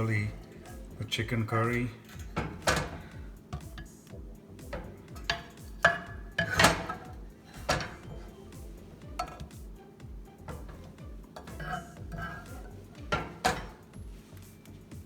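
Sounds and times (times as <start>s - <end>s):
background music with steady beat: 0.0s - 15.0s
utensil clinking against pot: 1.7s - 4.0s, 4.6s - 14.0s.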